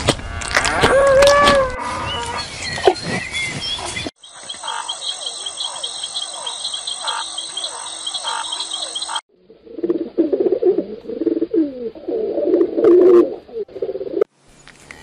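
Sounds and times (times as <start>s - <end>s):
bird chirps: 2.0s - 9.2s
high insect trill: 4.2s - 9.2s
flamingos calling: 4.3s - 9.2s.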